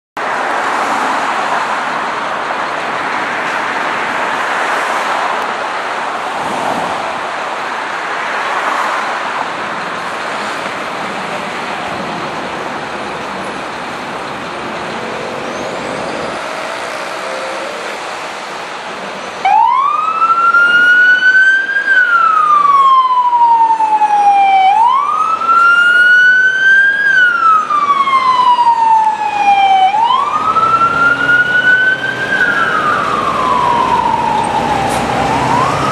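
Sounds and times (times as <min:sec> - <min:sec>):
street traffic noise: 0:00.2 - 0:35.9
wailing siren: 0:19.4 - 0:35.9.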